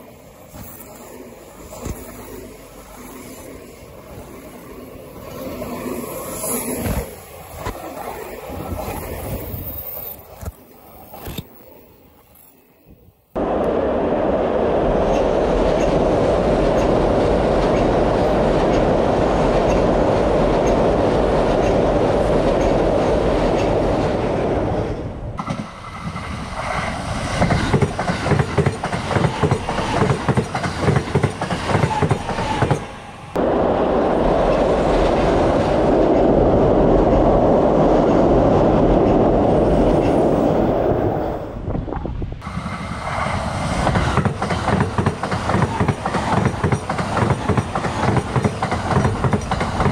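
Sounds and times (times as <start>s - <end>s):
train rumble: 13.4s - 49.9s
wheels clacking over rail joints: 25.4s - 32.9s, 43.8s - 49.9s.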